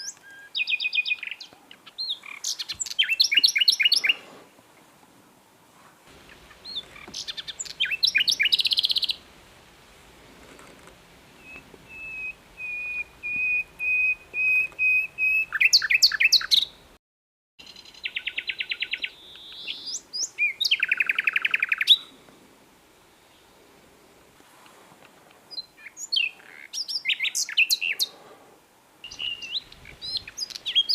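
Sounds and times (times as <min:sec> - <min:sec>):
nightingale singing: 0:00.0 - 0:04.2, 0:06.1 - 0:09.4, 0:11.3 - 0:16.9, 0:17.6 - 0:22.1, 0:25.5 - 0:28.1, 0:29.0 - 0:30.9.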